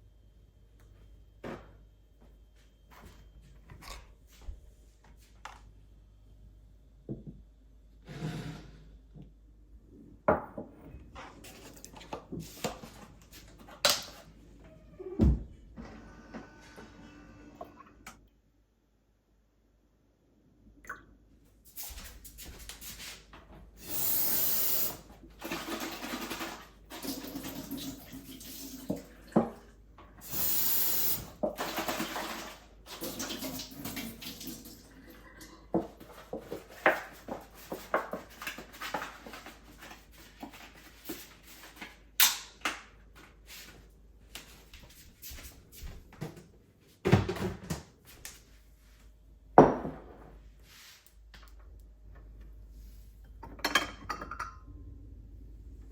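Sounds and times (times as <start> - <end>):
water running: 23.8 - 39.9
dishes and utensils clinking: 53.4 - 54.7.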